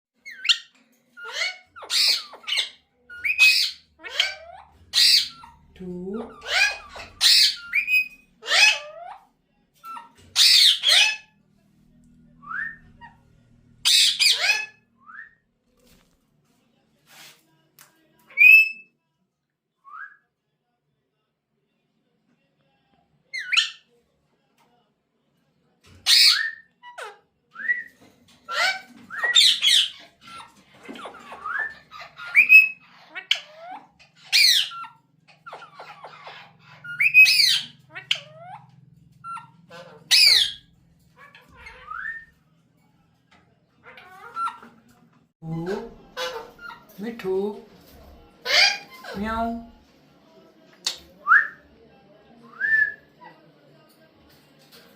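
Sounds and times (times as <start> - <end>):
parrot squawks: 0.2 - 5.6, 6.2 - 11.4, 13.8 - 14.9, 18.3 - 18.9, 23.4 - 23.9, 26.0 - 27.9, 28.5 - 42.4, 43.8 - 44.8, 48.4 - 49.2.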